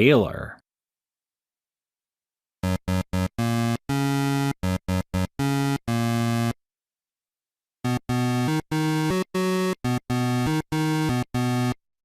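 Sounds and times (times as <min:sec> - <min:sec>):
rhythmic synthesizer tones: 0:02.6 - 0:06.6, 0:07.8 - 0:11.8.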